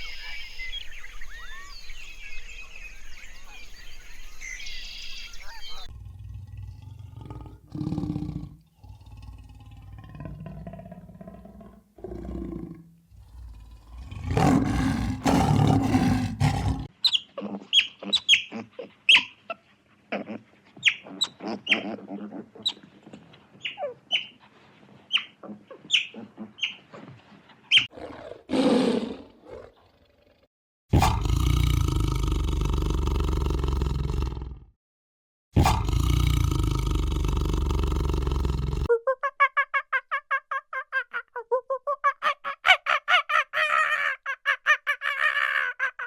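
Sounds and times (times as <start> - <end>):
animal growling: 5.8 - 16.9, 27.9 - 34.7, 35.6 - 38.9.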